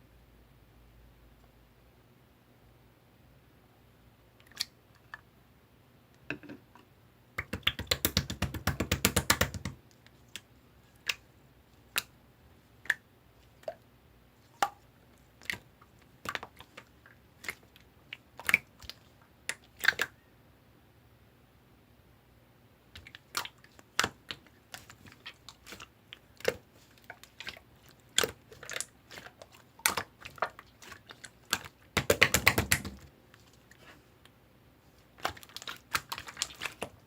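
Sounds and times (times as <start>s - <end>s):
slime clicking and popping: 7.4s - 9.8s, 23.0s - 33.1s.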